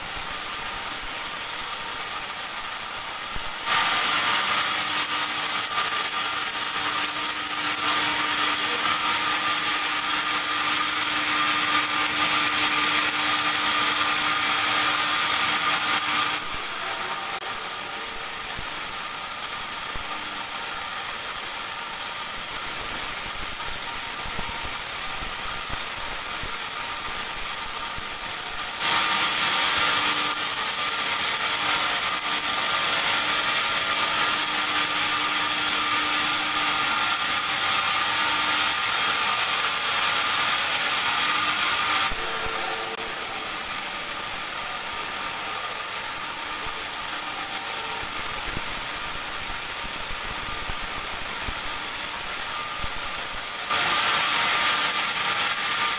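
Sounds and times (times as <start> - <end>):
band saw sawing log: 0.0 - 50.3, 51.7 - 55.9.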